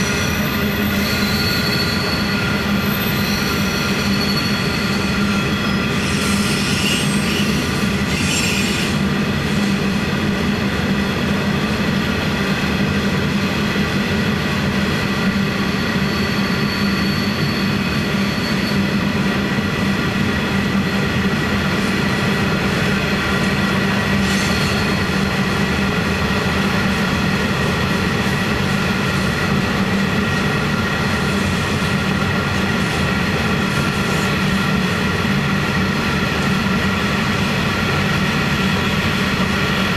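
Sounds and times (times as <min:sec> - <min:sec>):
steel wheels squealing: 0:00.0 - 0:09.0, 0:15.7 - 0:19.1, 0:24.2 - 0:25.3.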